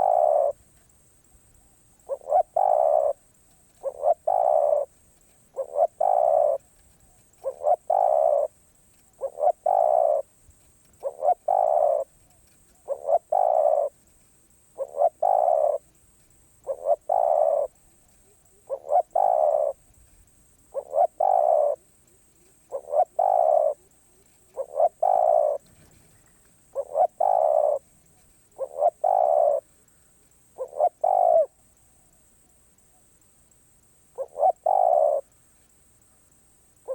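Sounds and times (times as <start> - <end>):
dove cooing: 0.0 - 0.8, 1.5 - 16.0, 16.6 - 29.9, 30.5 - 32.2, 34.1 - 35.4.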